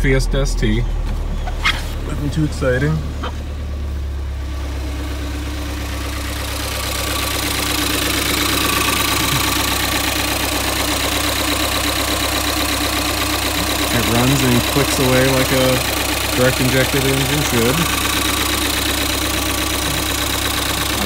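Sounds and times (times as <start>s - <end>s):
car engine idling: 0.0s - 21.0s
fuel injectors clicking: 6.6s - 21.0s.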